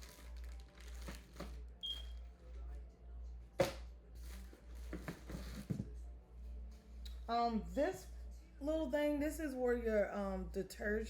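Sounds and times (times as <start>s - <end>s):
parts and packaging rustling: 0.0s - 1.8s, 3.6s - 5.9s
steady low hum: 0.0s - 11.0s.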